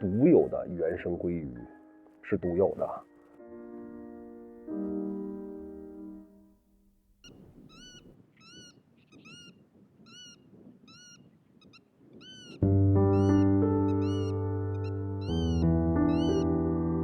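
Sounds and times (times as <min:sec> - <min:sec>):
music with sustained chords: 0:12.6 - 0:17.0
animal's short high call: 0:14.0 - 0:16.5.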